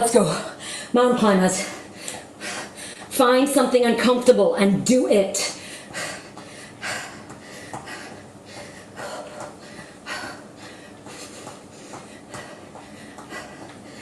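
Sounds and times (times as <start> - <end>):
woman breathing hard: 0.3 - 1.0, 1.6 - 3.1, 5.5 - 14.0.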